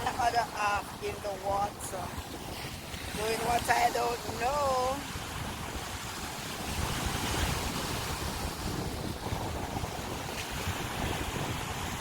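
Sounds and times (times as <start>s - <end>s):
sea surf breaking: 0.0s - 12.0s
wind buffeting microphone: 0.0s - 12.0s.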